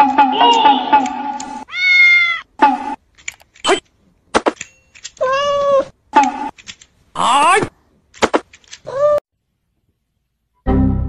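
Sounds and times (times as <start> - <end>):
cat meowing: 1.6 - 2.5, 5.2 - 5.9
music: 10.6 - 11.0.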